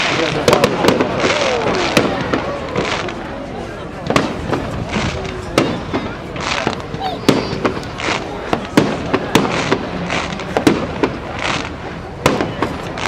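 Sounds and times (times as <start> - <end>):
fireworks bangs: 0.0 - 13.0
hissing crackling bursts: 4.0 - 13.0.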